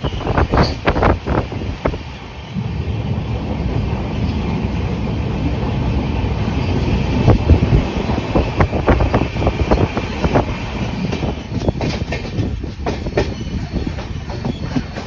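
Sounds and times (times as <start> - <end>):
train low rumble: 0.0 - 15.0
wind buffeting microphone: 0.0 - 15.0
wheels clattering over rail joints: 6.5 - 15.0.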